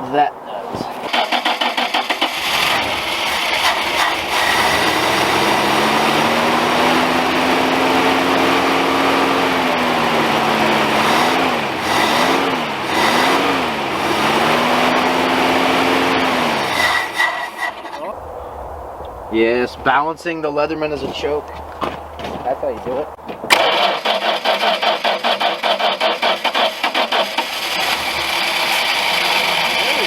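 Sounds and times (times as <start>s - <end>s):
truck engine running: 1.1s - 18.0s, 23.5s - 30.0s.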